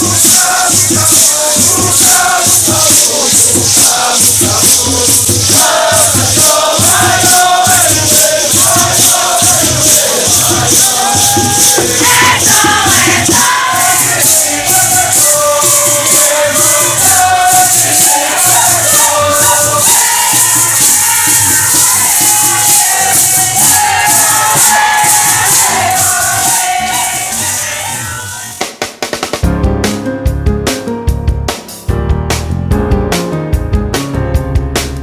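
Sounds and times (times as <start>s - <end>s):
group singing and chanting: 0.0s - 28.7s
maracas shaking: 0.0s - 28.8s
low beat: 29.4s - 35.0s.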